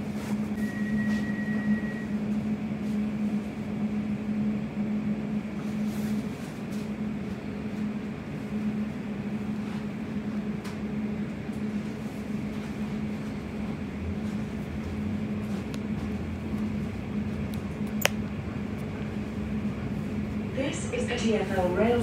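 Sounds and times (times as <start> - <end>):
electric train running hum: 0.0 - 22.0
brief high tone: 0.6 - 2.2.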